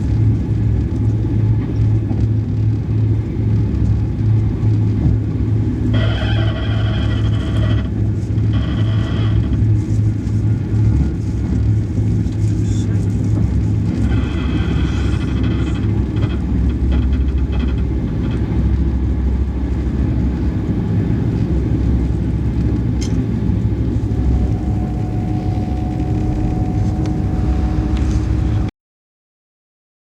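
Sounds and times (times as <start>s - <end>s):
train running rumble: 0.0s - 28.7s
faint steady whine: 8.6s - 28.7s.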